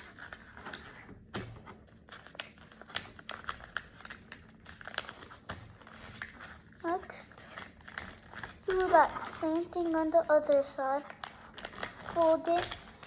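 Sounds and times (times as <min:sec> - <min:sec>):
paper folding and creasing: 0:00.0 - 0:13.0.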